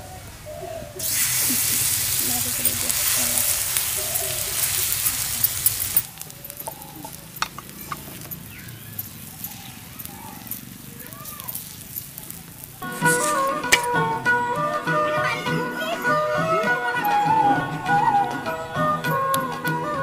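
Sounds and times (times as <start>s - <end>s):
batter sizzling in hot oil: 1.0s - 13.9s
faint scattered clicks: 2.2s - 12.8s
music: 12.8s - 20.0s.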